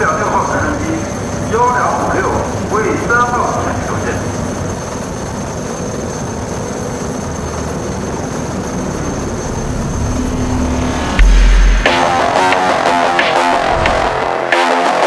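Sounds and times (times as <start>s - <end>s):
helicopter turbine and rotor: 0.0s - 14.5s
loud low thump: 9.1s - 14.5s.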